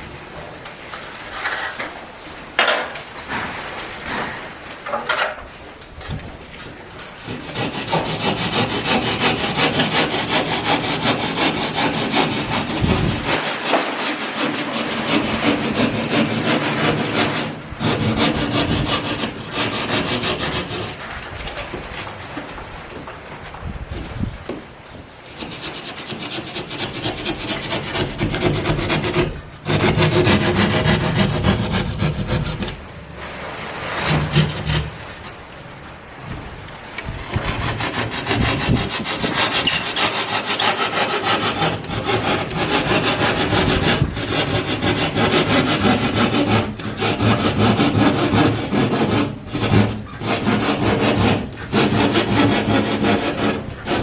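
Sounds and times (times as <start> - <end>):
sawing: 6.9 - 22.6, 25.2 - 35.6, 36.9 - 54.0.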